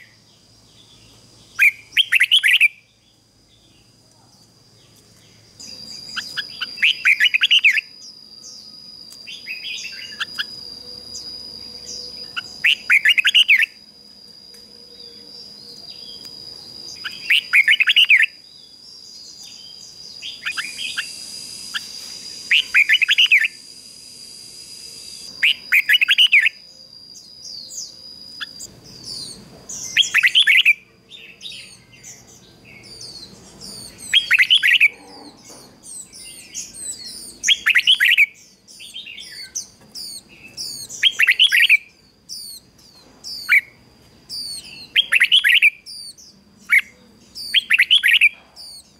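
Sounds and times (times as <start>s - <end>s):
bird singing warbling phrases: 0.0s - 13.9s, 14.8s - 23.8s, 24.7s - 48.9s
steady high-pitched tone: 5.5s - 18.4s, 19.4s - 28.7s.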